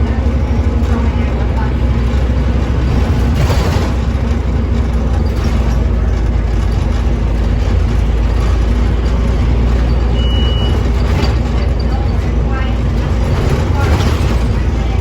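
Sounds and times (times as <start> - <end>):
bus engine humming: 0.0 - 15.0
short high beep: 10.2 - 10.8.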